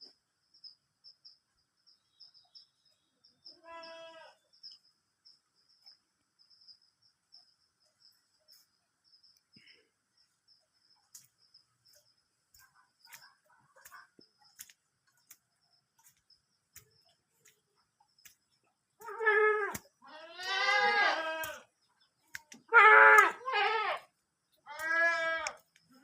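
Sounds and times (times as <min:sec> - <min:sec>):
insects chirping: 0:00.0 - 0:26.0
goat bleating: 0:03.6 - 0:04.4, 0:19.0 - 0:21.7, 0:22.7 - 0:24.1, 0:24.7 - 0:25.6.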